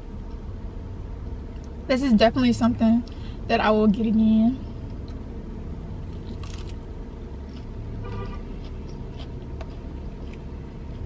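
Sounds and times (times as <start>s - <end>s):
steady low rumble: 0.0s - 11.0s
person chewing a sandwich: 6.0s - 6.8s, 7.4s - 11.0s.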